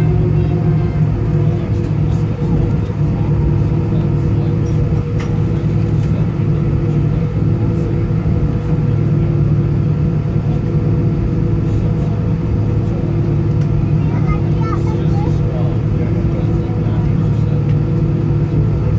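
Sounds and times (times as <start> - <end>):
jet engines droning in cabin: 0.0 - 18.9.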